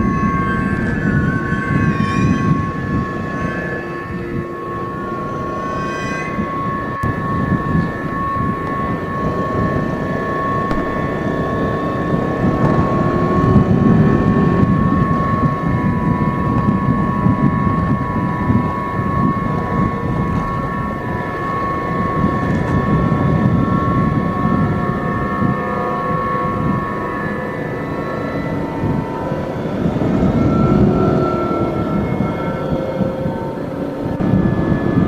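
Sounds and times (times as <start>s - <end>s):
high-pitched drone: 0.0s - 35.0s
wind buffeting microphone: 6.3s - 35.0s
motorcycle engine rumble: 7.0s - 23.0s.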